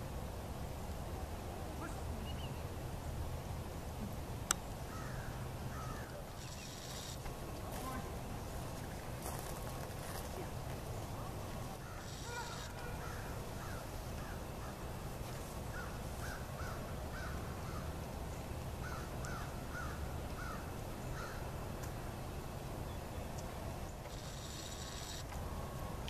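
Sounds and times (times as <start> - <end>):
bird calling: 4.8 - 7.3, 11.8 - 14.9, 15.7 - 17.9, 18.8 - 21.5.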